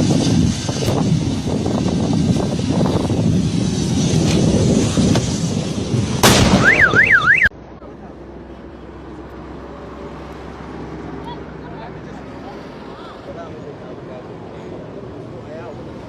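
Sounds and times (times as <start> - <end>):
loud outdoor noise: 0.0 - 16.0
steady background noise: 0.0 - 16.0
electronic siren warbling: 6.5 - 7.5.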